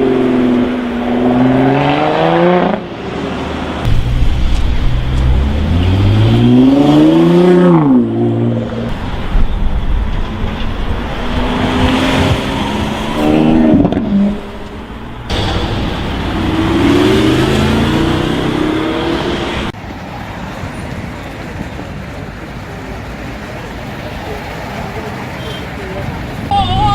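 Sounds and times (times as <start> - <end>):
sports car engine accelerating: 0.0 - 9.1, 10.9 - 19.8
road noise hiss: 14.3 - 26.9.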